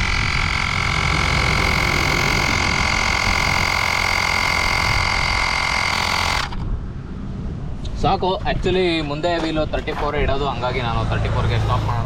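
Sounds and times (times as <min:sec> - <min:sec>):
air compressor running: 0:00.0 - 0:06.6
high-pitched whine: 0:00.0 - 0:06.6.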